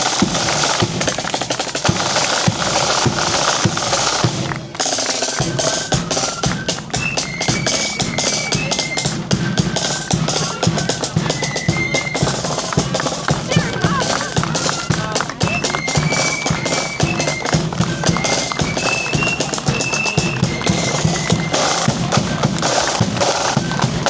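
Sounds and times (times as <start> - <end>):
snare drums rolling: 0.0 - 24.0
high flute melody: 1.7 - 24.0
bass drum beats: 9.1 - 24.0.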